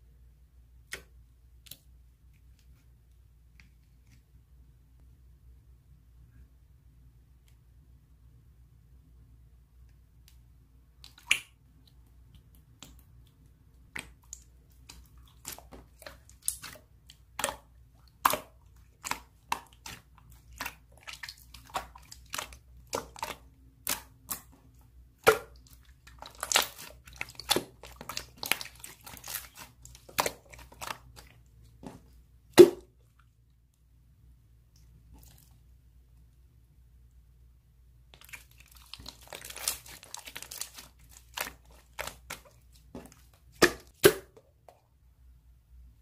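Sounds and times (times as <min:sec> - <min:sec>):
slime popping and crackling: 0:25.2 - 0:31.3, 0:38.2 - 0:42.5.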